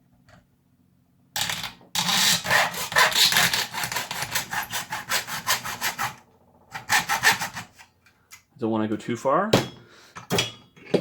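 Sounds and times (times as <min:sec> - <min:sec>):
hacksaw cutting plastic: 0:01.4 - 0:07.9.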